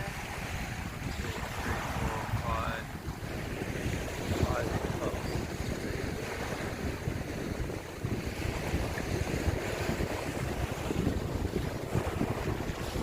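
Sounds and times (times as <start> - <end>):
waves breaking on beach: 0.0 - 13.0
wind buffeting microphone: 0.0 - 13.0.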